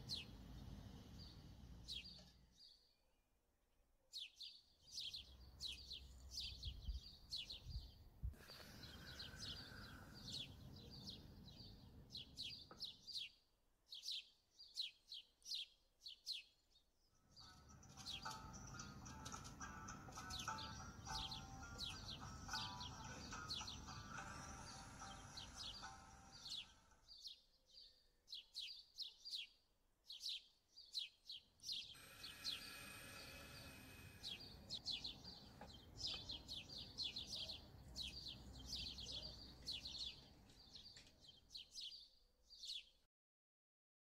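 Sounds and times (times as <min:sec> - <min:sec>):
faint birds chirping: 0:00.0 - 0:03.4, 0:04.1 - 0:43.1
soft background music: 0:17.3 - 0:27.0.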